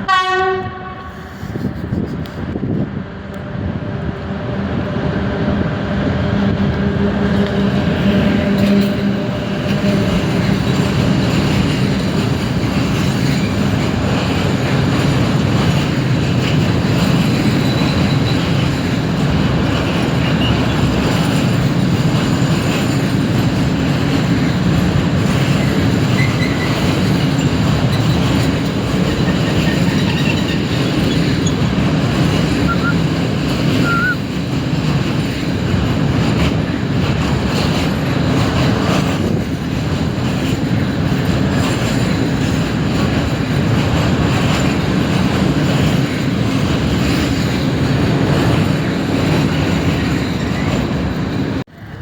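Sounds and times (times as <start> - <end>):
train wheels rumbling on rails: 0.0 - 52.0
faint wheel squeals: 32.6 - 33.1, 33.8 - 34.2.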